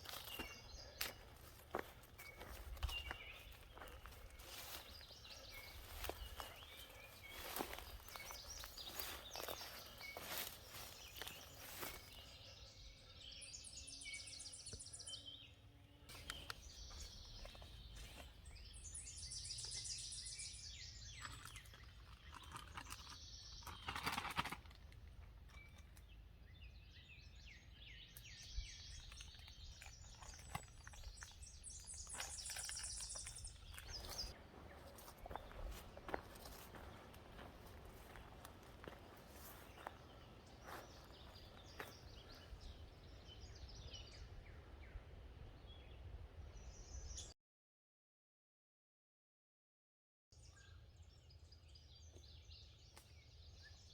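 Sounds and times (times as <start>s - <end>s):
footsteps on trail: 0.0s - 13.3s, 16.1s - 24.6s, 26.8s - 44.2s
songbirds singing: 0.0s - 47.4s, 50.4s - 53.9s.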